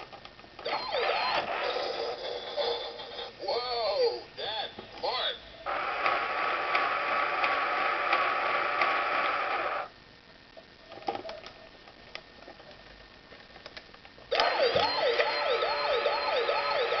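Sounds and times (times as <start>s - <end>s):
toy electronic sound effects: 0.6s - 5.4s, 14.3s - 17.0s
yelping toy siren: 0.7s - 3.0s, 14.4s - 17.0s.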